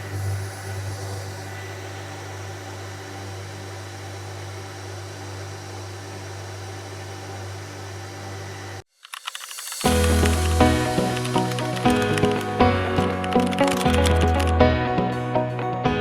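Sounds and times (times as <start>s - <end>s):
sanding machine running: 0.0s - 8.8s, 9.4s - 14.5s.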